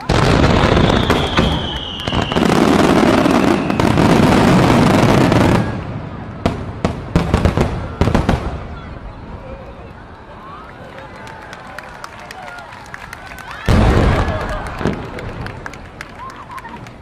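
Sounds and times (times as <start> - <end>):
firework bangs: 0.0 - 9.4, 13.6 - 16.0
fireworks crackling: 0.0 - 12.0, 12.8 - 17.0
firework whistle falling in pitch: 0.3 - 4.0.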